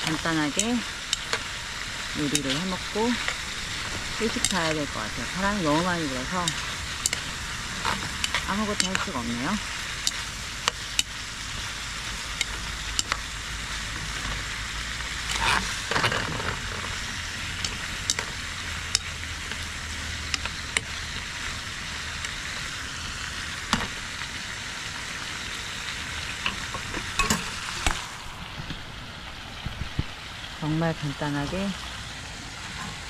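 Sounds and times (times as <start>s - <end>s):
food sizzling in a pan: 0.0s - 33.0s
cooking utensil clicks and scrapes: 0.5s - 1.6s, 2.2s - 4.8s, 5.4s - 9.2s, 9.8s - 11.2s, 12.1s - 13.3s, 15.2s - 21.2s, 26.3s - 28.0s.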